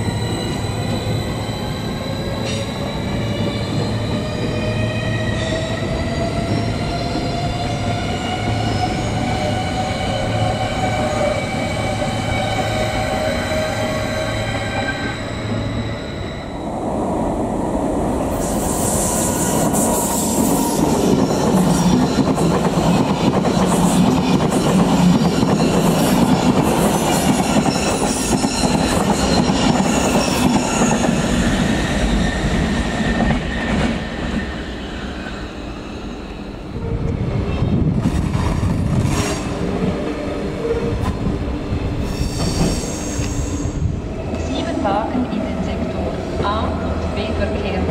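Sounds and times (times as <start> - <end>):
train rumbling on rails: 0.0 - 47.9
high wheel squeal: 9.8 - 16.7, 42.0 - 43.8.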